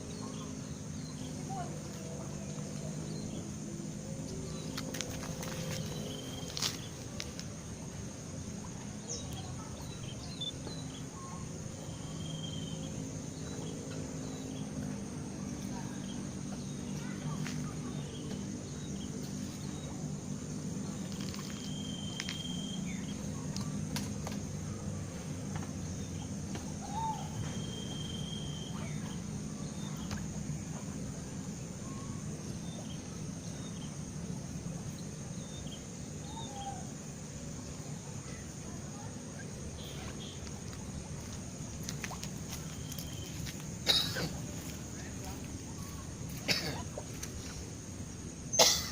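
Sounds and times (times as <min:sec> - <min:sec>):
high buzz of insects: 0:00.0 - 0:48.9
low background ambience: 0:00.0 - 0:48.9
steady low hum: 0:00.0 - 0:48.9
faint chirps and clicks: 0:04.3 - 0:07.5, 0:09.1 - 0:10.9, 0:21.0 - 0:24.5, 0:29.8 - 0:30.9, 0:39.4 - 0:43.7
faint bird chirps: 0:09.0 - 0:14.7, 0:20.8 - 0:23.8, 0:25.9 - 0:30.8, 0:31.8 - 0:34.0, 0:42.6 - 0:47.6
whistled bird call: 0:21.5 - 0:23.0, 0:26.7 - 0:29.2.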